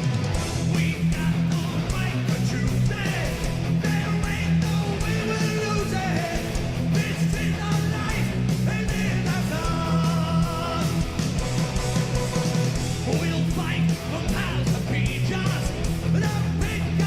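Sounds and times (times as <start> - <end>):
electric guitar: 0.0 - 17.0
steady drum beat: 0.0 - 17.0
person singing: 0.8 - 11.0.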